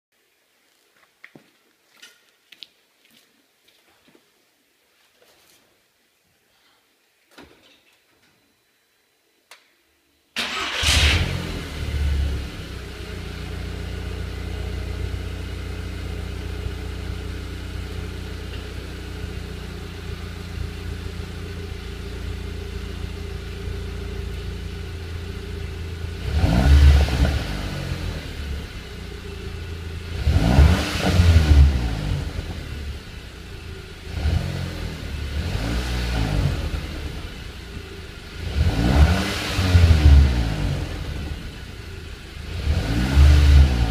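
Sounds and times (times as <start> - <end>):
car engine revving: 10.4 - 17.4, 19.9 - 43.9
car engine starting and idling: 10.4 - 43.9.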